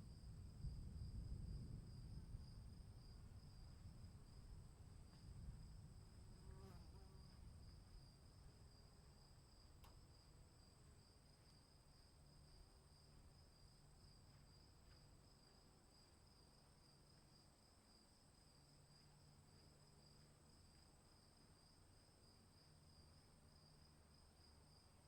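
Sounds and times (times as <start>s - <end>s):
soft low rumble: 0.0s - 6.4s.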